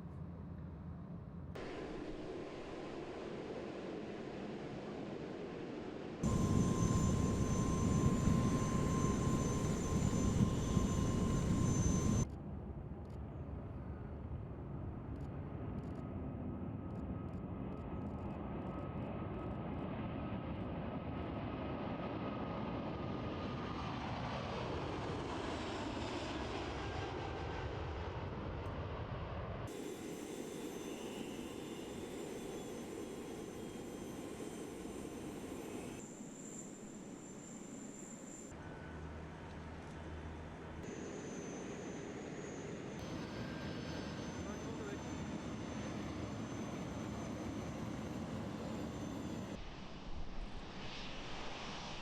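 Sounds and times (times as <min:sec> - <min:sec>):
aircraft passing: 0:01.6 - 0:12.2, 0:20.0 - 0:52.0
high whine: 0:01.6 - 0:12.3, 0:29.7 - 0:52.0
jet engines roaring: 0:01.6 - 0:12.3, 0:23.2 - 0:52.0.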